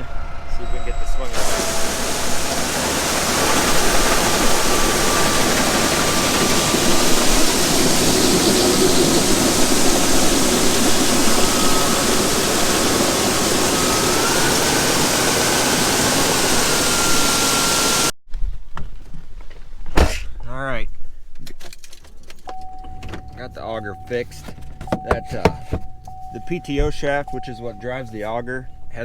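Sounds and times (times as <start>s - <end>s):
grain auger rushing noise: 0.0s - 18.2s
thin machine whine: 0.0s - 18.2s, 22.6s - 29.0s.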